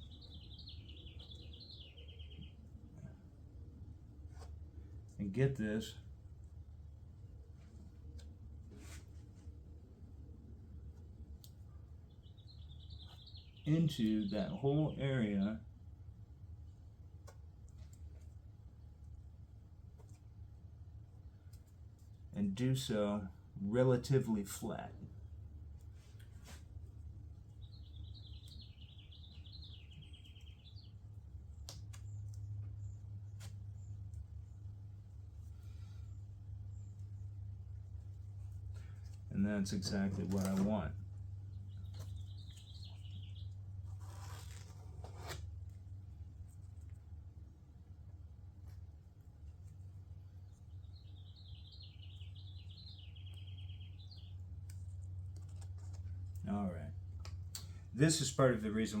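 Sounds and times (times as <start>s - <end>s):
small songbird singing: 0.0s - 2.6s, 12.1s - 15.4s, 27.5s - 33.1s, 41.4s - 43.6s, 50.3s - 54.4s
steady low hum: 0.0s - 59.0s.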